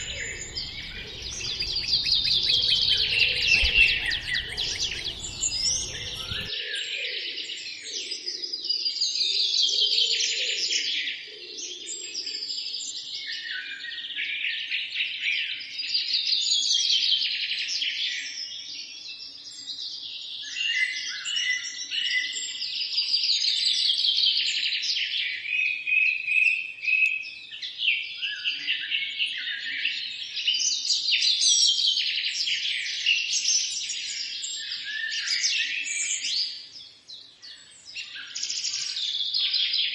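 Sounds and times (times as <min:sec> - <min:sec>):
low background rush: 0:00.0 - 0:06.5
songbirds chirping and trilling: 0:00.0 - 0:07.8.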